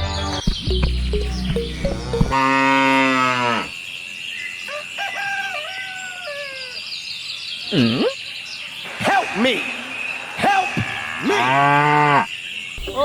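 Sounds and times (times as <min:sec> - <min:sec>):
music with low notes: 0:00.4 - 0:02.5.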